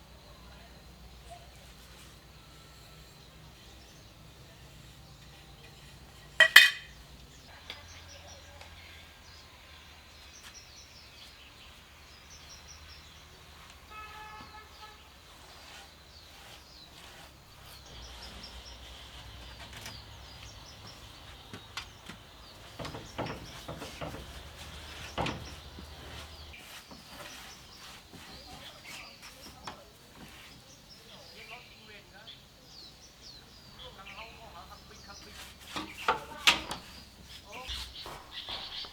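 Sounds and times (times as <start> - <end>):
small birds chirping: 0.0 - 38.9
sharp knocks and clicks: 19.3 - 26.6.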